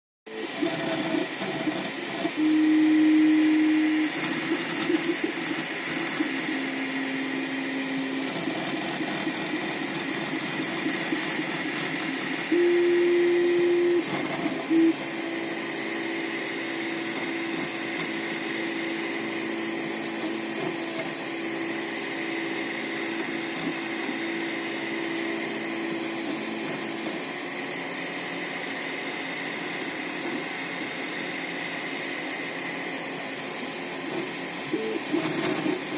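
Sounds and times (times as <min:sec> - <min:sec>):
stepper motors humming: 0:00.4 - 0:16.2
steady high whine: 0:00.4 - 0:20.0.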